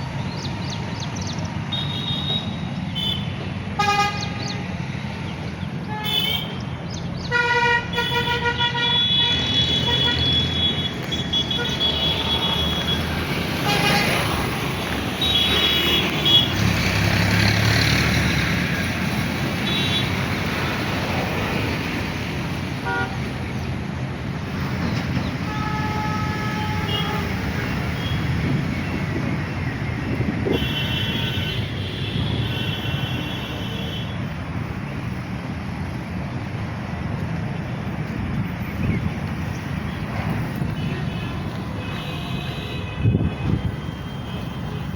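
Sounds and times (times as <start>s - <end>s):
road traffic: 0.0s - 44.9s
vehicle horns honking: 1.7s - 4.7s, 5.8s - 6.6s, 7.2s - 16.8s, 19.6s - 20.2s, 22.8s - 23.4s, 25.3s - 28.6s, 30.3s - 34.4s, 40.6s - 44.9s.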